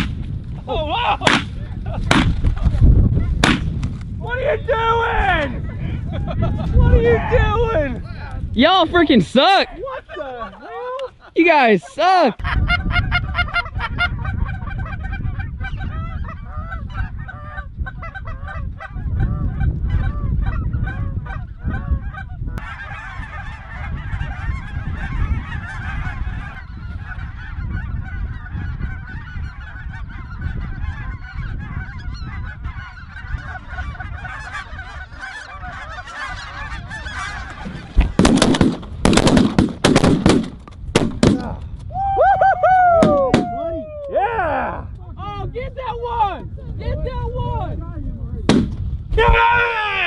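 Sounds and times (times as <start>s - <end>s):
shotgun blasts: 0.0s - 0.2s, 1.2s - 2.4s, 3.4s - 3.8s, 38.2s - 41.5s, 48.5s - 48.8s
wind rumbling on microphone: 0.0s - 11.4s, 12.4s - 50.0s
geese honking: 8.7s - 38.7s.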